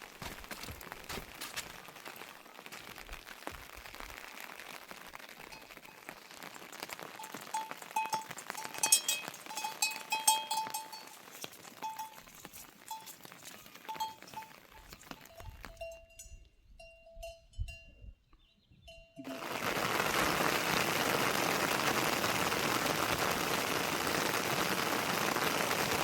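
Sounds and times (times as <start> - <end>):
small metal bell clinking: 7.6 - 18.2.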